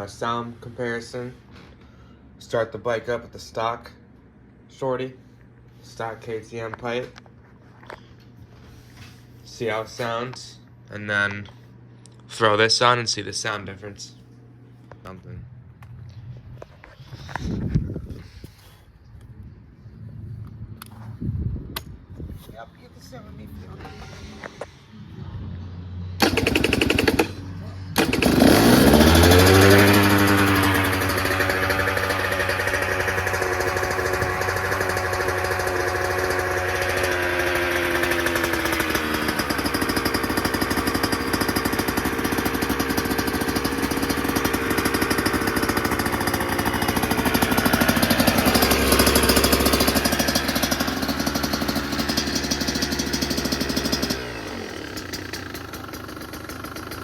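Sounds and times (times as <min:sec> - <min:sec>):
dirt bike engine idling: 0:26.2 - 0:57.0.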